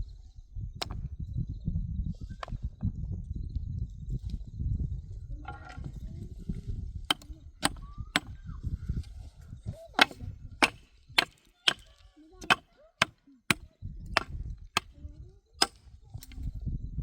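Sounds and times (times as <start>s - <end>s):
chopping blows into wood: 7.1s - 8.3s, 10.0s - 14.9s.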